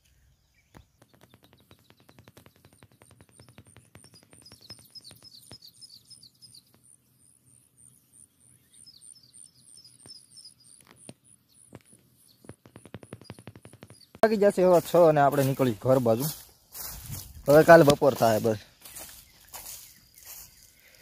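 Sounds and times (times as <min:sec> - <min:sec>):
high bird chirp: 0:00.0 - 0:21.0
short falling bird calls: 0:18.4 - 0:21.0.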